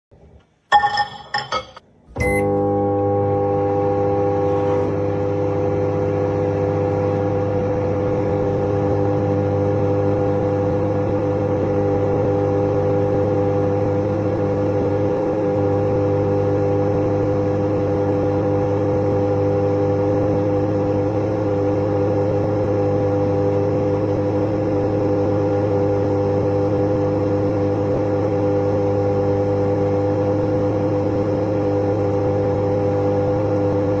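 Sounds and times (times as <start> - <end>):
microwave oven humming: 0.2 - 34.0
short beeps: 2.2 - 2.5.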